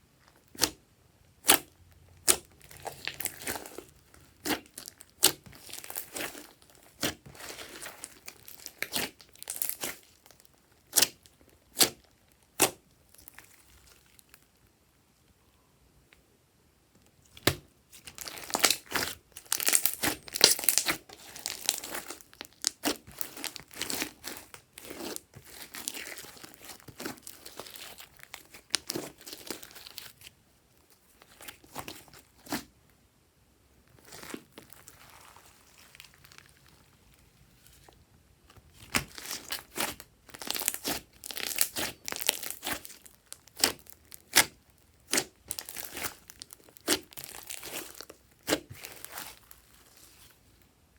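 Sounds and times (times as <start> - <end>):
slime crackling and popping: 1.4 - 14.4, 17.2 - 30.3, 38.6 - 50.3.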